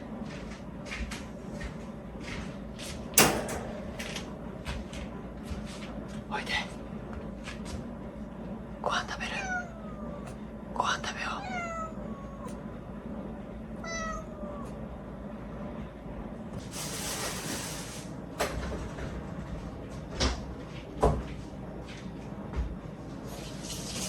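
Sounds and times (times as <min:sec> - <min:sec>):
cat meowing: 0:09.1 - 0:10.4, 0:11.0 - 0:12.6, 0:13.8 - 0:14.9.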